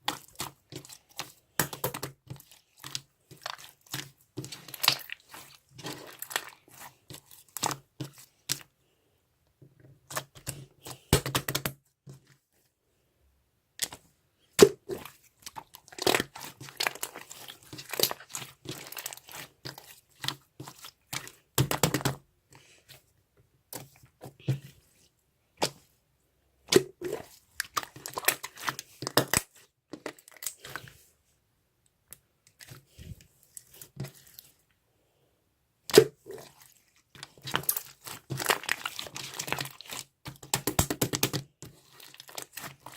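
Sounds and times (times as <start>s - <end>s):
crinkling and crunching: 0.0s - 8.7s, 13.8s - 22.8s, 26.7s - 31.1s, 32.5s - 34.8s, 35.9s - 42.9s.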